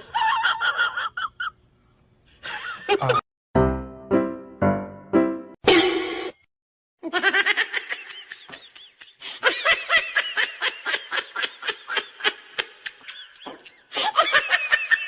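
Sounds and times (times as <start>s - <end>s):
person laughing: 2.4s - 3.2s.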